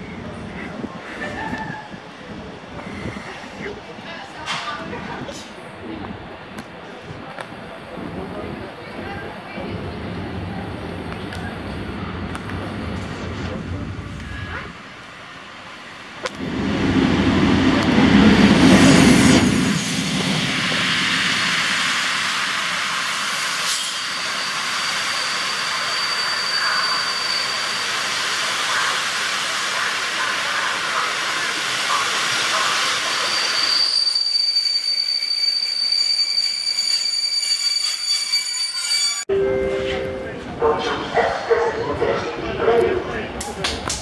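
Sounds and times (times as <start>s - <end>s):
high brake squeal: 23.2s - 28.2s, 32.8s - 39.3s.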